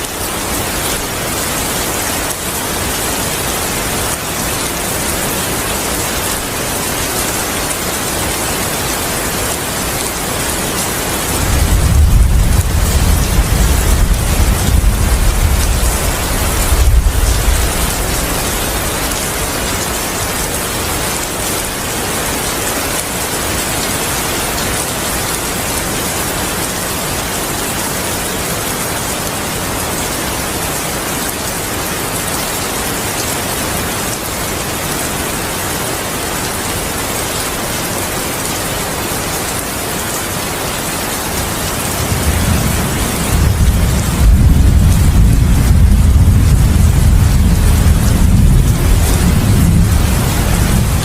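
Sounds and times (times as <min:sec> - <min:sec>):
heavy rain falling: 0:00.0 - 0:51.0
low thunder rumble: 0:11.4 - 0:18.8, 0:42.0 - 0:51.0.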